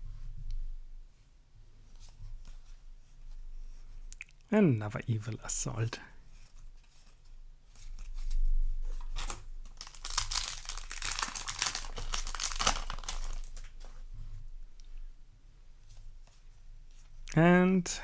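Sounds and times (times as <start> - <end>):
foil wrapper crinkling: 7.9 - 13.9.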